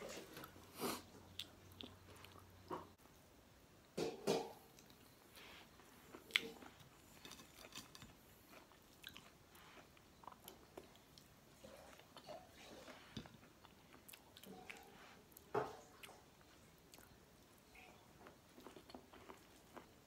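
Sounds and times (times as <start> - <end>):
person chewing with mouth clicks: 6.0 - 20.0.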